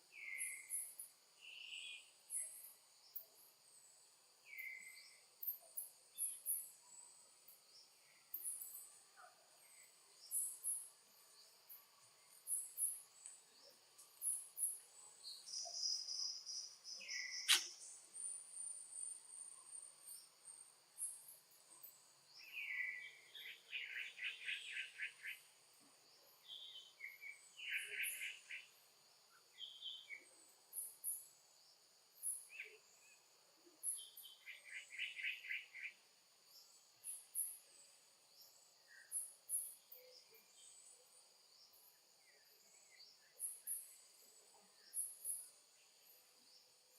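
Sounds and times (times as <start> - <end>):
insects chirping and droning: 0.0 - 46.9
short rapid insect trills: 9.8 - 46.9
sharp click: 17.4 - 17.9.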